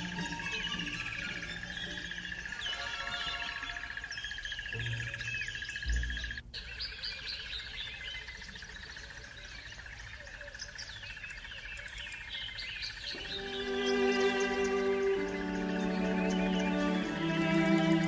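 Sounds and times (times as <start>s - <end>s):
birds chirping and calling: 0.0s - 18.0s.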